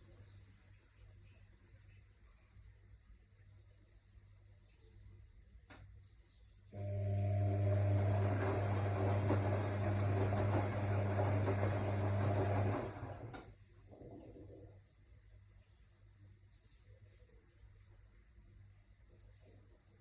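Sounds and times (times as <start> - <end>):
sharp click: 5.7 - 5.9
washing machine drum turning: 7.7 - 13.4.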